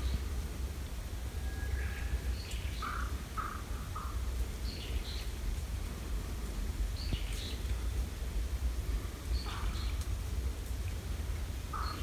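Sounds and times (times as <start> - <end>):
birds calling: 1.7 - 5.4, 9.3 - 10.1, 11.7 - 12.0.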